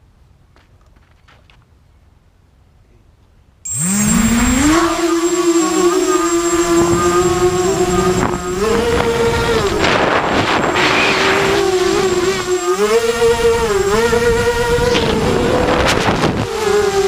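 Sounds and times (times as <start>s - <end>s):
quadcopter motors whining: 3.7s - 17.0s.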